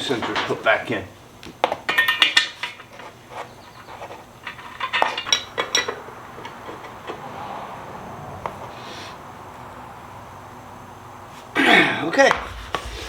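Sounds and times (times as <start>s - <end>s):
metal tools clinking and knocking: 1.7s - 7.2s.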